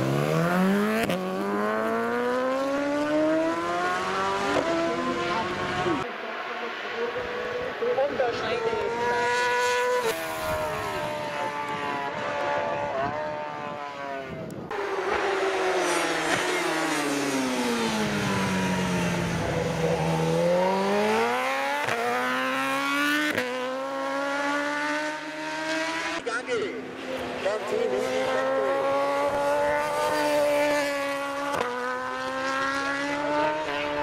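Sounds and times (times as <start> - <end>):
motorcycle engine upshifting: 8.7 - 26.2.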